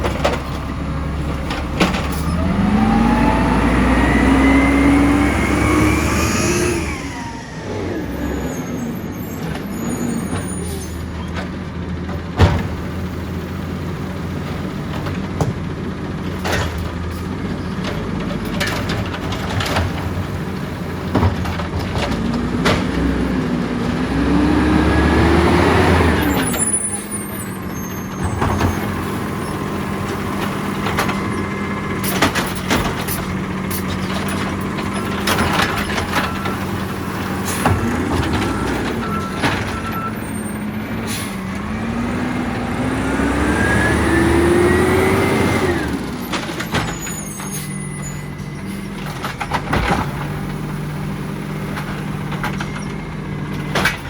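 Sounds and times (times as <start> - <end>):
knocks and clanks: 0.0 - 2.9, 10.3 - 13.0, 14.6 - 23.4, 28.1 - 42.0, 45.3 - 47.7, 49.0 - 51.1, 51.7 - 54.0
garbage truck engine revving: 0.0 - 54.0.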